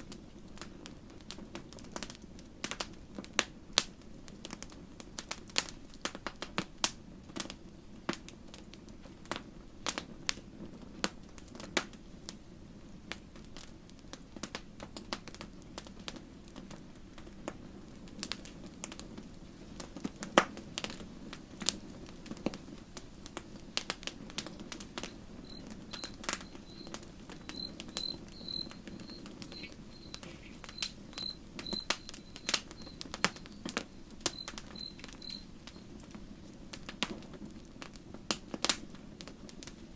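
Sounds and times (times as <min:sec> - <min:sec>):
campfire crackling and popping: 0:00.0 - 0:39.9
short high chirps: 0:25.5 - 0:35.8.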